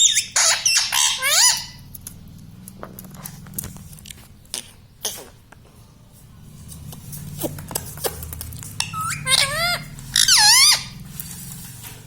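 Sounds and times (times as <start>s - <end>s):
parrot calls with wavering pitch: 0.0s - 1.8s, 8.8s - 11.0s.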